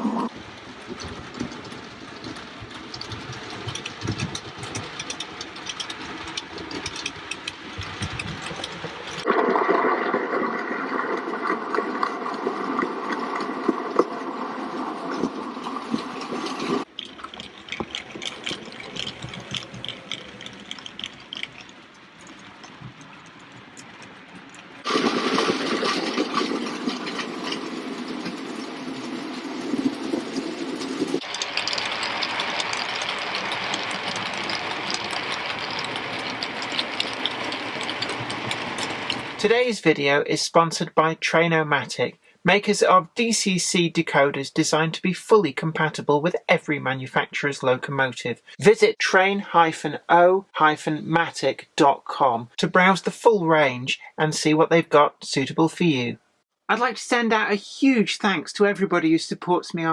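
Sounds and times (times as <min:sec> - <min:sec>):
model train running on track: 0:00.0 - 0:09.2, 0:15.6 - 0:22.4, 0:24.7 - 0:39.6.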